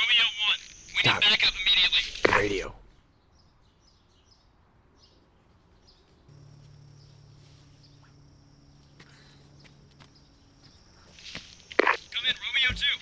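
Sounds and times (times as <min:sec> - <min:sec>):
soft bird chirps: 0:00.0 - 0:13.0
low steady hum: 0:00.6 - 0:03.0, 0:06.3 - 0:13.0.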